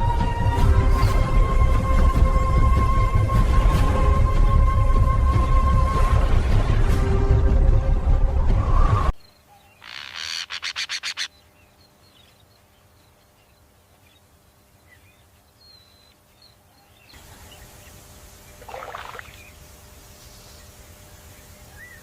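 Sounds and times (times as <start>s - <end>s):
sharp bird calls: 9.4s - 12.4s.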